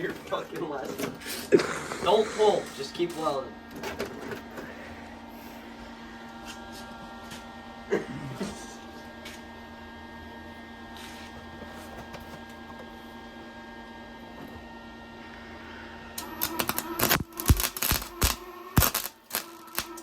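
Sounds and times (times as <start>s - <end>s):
welder hum: 1.2s - 3.5s, 14.5s - 20.0s
welding arc sizzling: 1.2s - 3.5s, 16.2s - 20.0s
welding arc cracks and pops: 16.2s - 20.0s.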